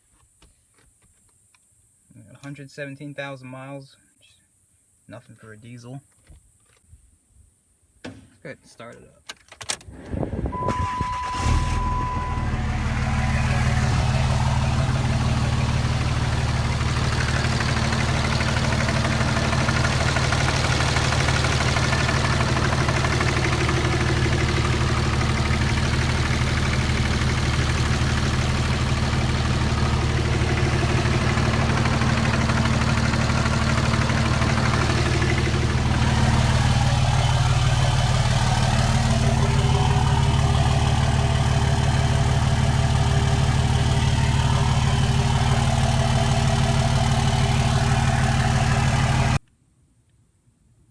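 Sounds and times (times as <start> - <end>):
diesel engine starting and idling: 9.7 - 49.4.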